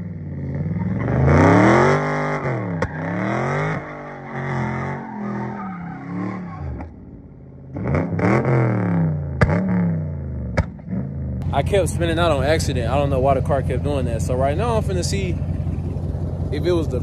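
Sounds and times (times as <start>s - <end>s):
car engine revving: 0.0s - 17.0s
sharp crack: 10.5s - 10.9s.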